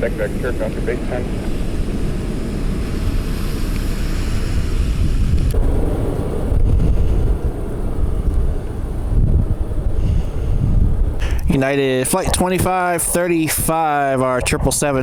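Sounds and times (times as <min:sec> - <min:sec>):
high hiss: 0:00.0 - 0:05.6
wind buffeting microphone: 0:00.0 - 0:15.0.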